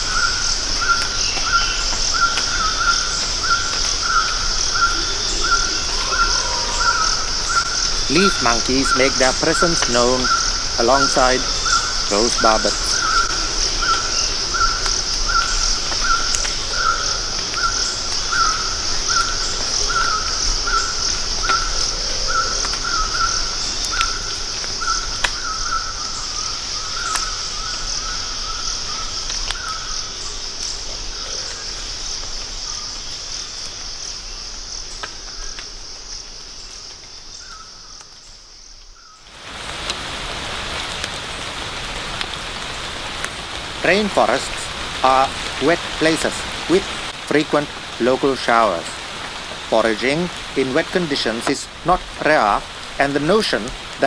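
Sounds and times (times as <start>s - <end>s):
barbet calling: 0.0s - 30.3s
insects droning: 0.0s - 54.0s
rain hissing: 0.0s - 54.0s.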